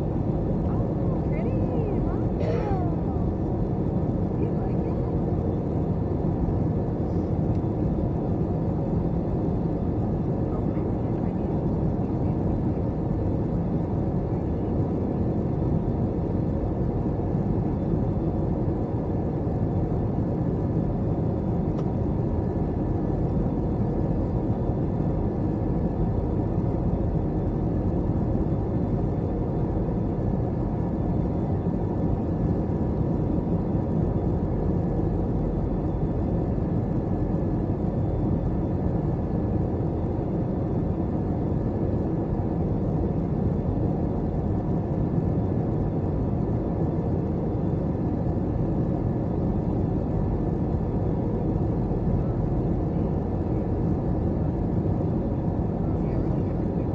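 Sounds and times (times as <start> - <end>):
airliner cabin engine and airflow noise: 0.0 - 56.9
faint steady hum: 0.0 - 56.9.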